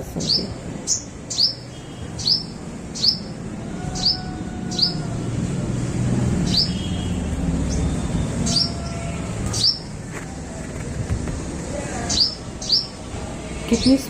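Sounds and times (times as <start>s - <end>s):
sparrow chirping: 0.0s - 5.2s, 6.3s - 10.0s, 12.0s - 13.1s, 13.7s - 14.0s.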